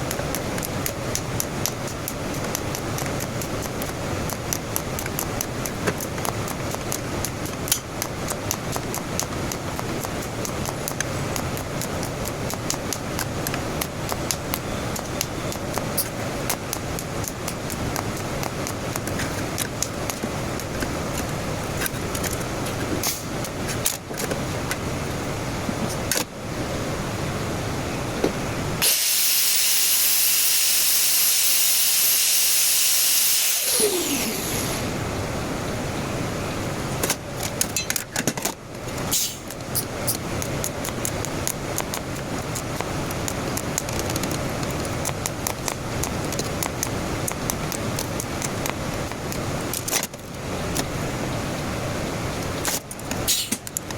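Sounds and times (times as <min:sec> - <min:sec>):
scattered clicks and knocks: 0:00.0 - 0:24.8
welding arc hissing: 0:28.8 - 0:34.9.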